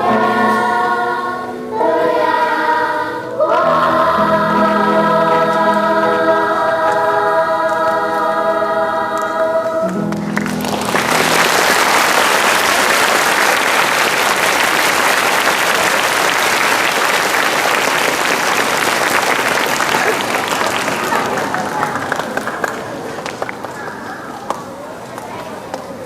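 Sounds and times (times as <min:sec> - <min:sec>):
choir singing sustained chord: 0:00.0 - 0:10.1
audience applause: 0:10.0 - 0:24.5.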